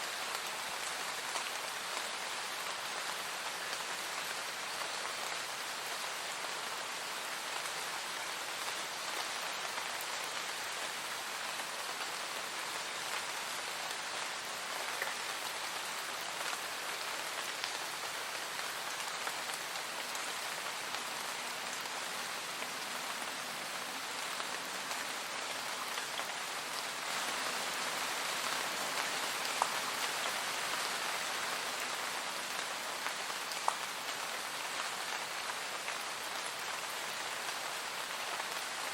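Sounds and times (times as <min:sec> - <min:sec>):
steady rain on a surface: 0:00.0 - 0:38.9.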